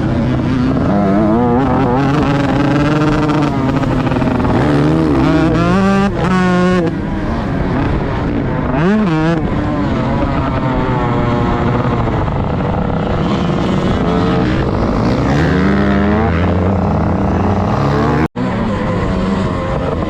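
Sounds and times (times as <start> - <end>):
motocross bike engine revving: 0.0 - 20.0.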